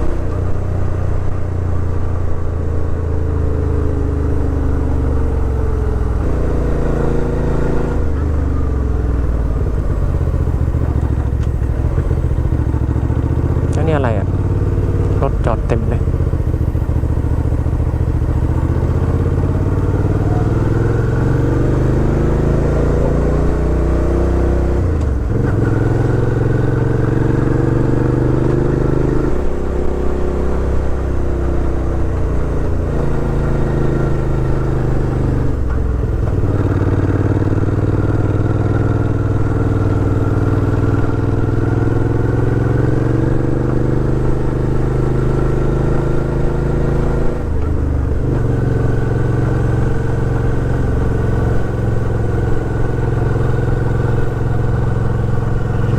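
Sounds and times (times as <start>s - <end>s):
motorcycle engine under way: 0.0s - 55.9s.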